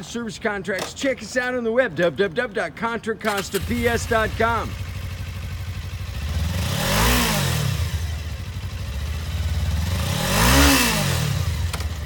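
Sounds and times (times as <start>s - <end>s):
motorcycle engine idling and revving: 3.3s - 12.0s.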